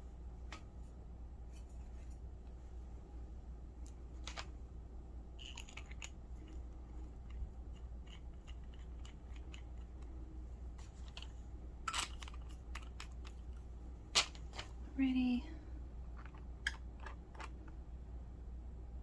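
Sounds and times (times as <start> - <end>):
low hum: 0.0 - 19.0
small objects handled on a desk: 3.8 - 4.6, 5.4 - 14.8, 16.1 - 17.8.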